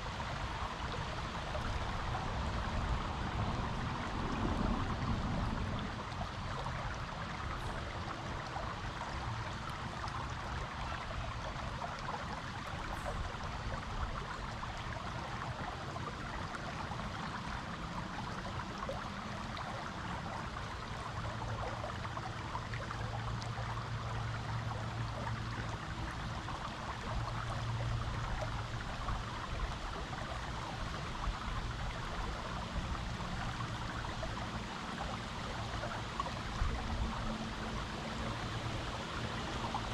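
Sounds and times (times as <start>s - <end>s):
creek water flowing over rocks: 0.0s - 39.9s.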